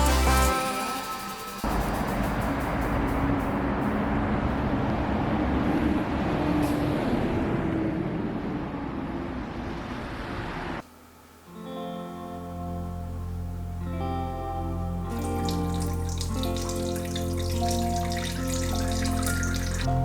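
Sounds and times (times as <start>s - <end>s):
soft guitar music: 0.0s - 2.0s, 11.0s - 20.0s.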